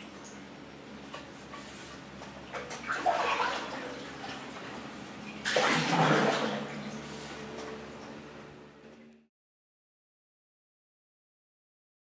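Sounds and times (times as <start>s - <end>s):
paddle strokes splashing echoing: 5.4s - 7.3s.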